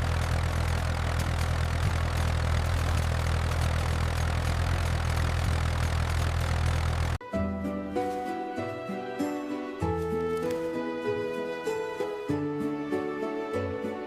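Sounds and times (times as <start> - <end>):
tractor engine droning: 0.0 - 7.2.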